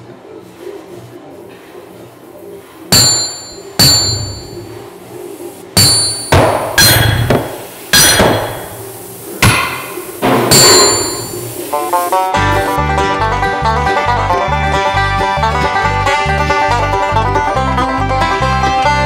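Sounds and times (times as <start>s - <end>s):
sharp ringing strikes: 2.9s - 4.8s, 5.8s - 8.8s, 9.4s - 11.6s.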